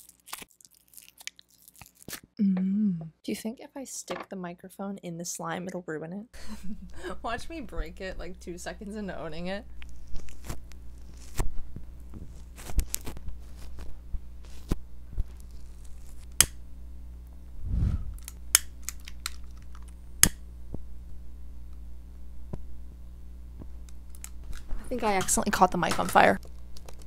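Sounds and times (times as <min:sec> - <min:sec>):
slime crackling and squelching: 0:00.0 - 0:02.4, 0:09.8 - 0:11.5
short low rumble: 0:17.6 - 0:18.3.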